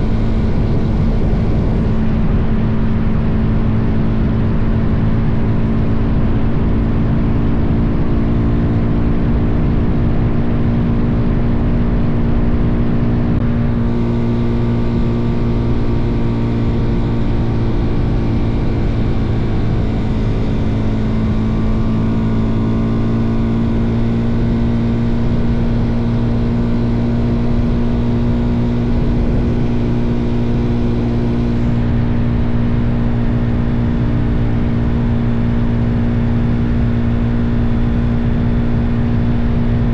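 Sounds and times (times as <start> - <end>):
wind buffeting microphone: 0.0 - 6.0
motorcycle engine cruising: 0.0 - 39.9.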